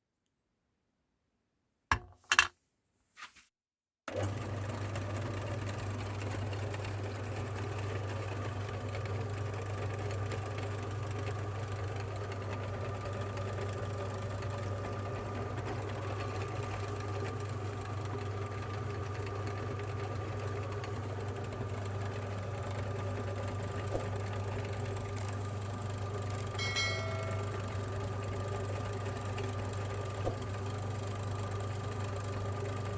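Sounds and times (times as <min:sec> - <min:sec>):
meat grinder motor humming: 0:04.1 - 0:32.9
short high-pitched tone: 0:26.6 - 0:27.8.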